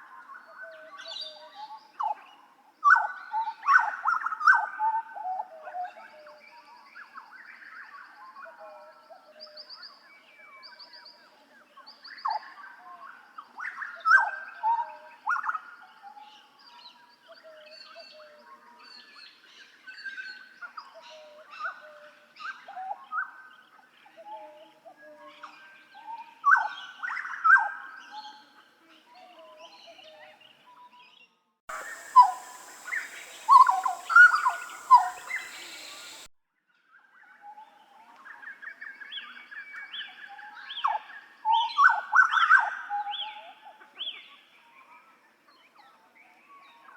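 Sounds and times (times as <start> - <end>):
bird singing fluting whistles: 31.7 - 36.3
steady hiss: 31.7 - 36.3.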